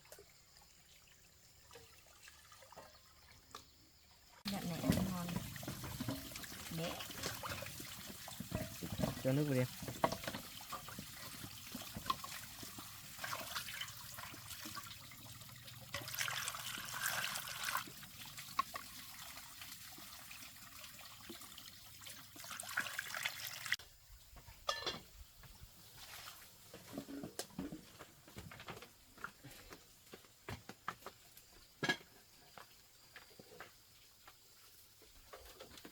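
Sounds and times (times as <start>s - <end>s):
water pouring into pot: 4.5s - 23.8s.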